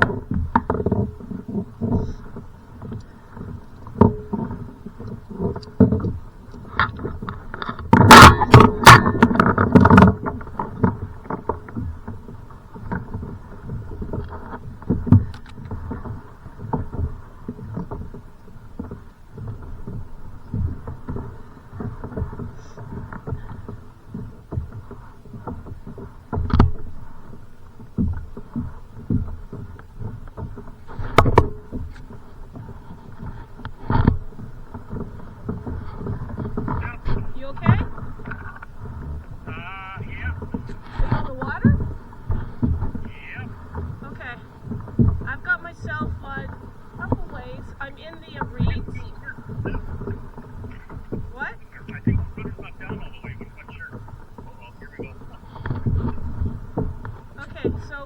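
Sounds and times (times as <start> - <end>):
water slapping against kayak hull: 0.0 - 58.0
loud knocks and clatter: 7.8 - 10.4.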